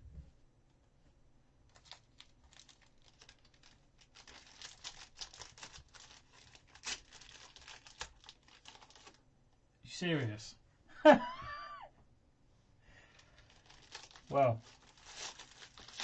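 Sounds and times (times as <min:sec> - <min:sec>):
trading cards crackling and rustling: 0:01.7 - 0:09.2, 0:13.0 - 0:16.0.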